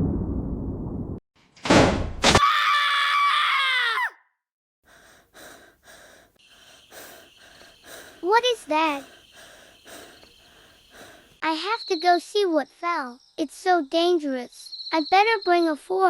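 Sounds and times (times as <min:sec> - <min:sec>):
crash rumble: 0:00.0 - 0:02.2
long high strained cry: 0:02.4 - 0:04.2.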